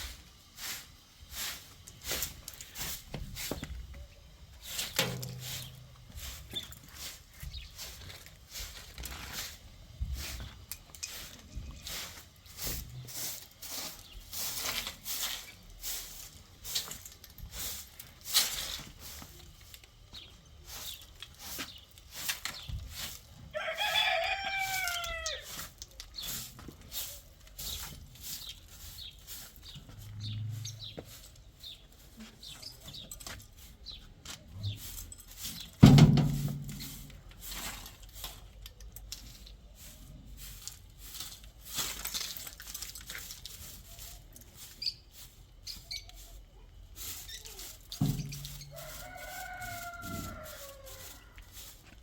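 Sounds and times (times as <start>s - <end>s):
rooster crowing: 23.5s - 25.5s, 48.6s - 51.4s.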